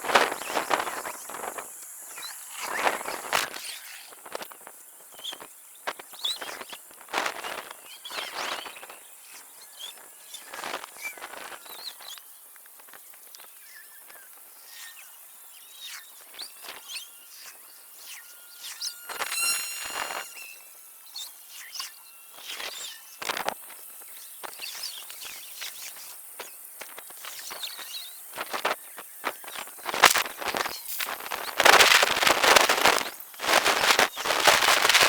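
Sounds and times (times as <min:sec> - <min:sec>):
brief squeaky sound: 0:18.6 - 0:20.8.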